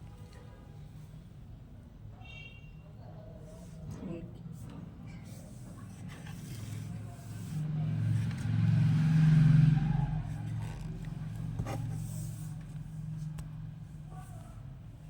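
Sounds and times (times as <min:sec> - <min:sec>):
vehicle engine hum: 0:05.6 - 0:15.0.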